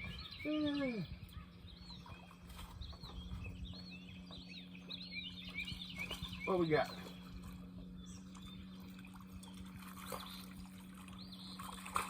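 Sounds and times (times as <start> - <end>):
steady low hum: 0.0 - 12.0
water trickling and splashing: 1.9 - 12.0.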